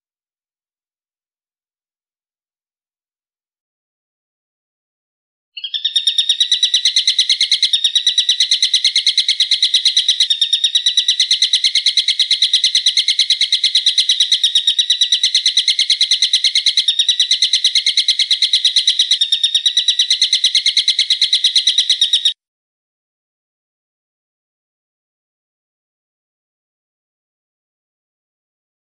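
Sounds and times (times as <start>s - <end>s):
bird call note repeated rapidly: 5.6s - 22.4s.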